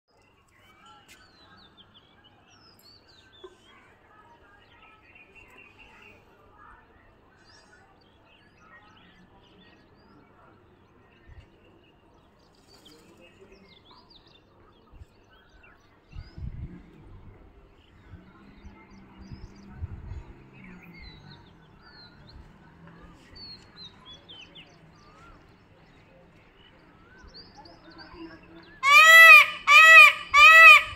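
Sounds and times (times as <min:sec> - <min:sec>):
low voices: 0:16.2 - 0:30.9.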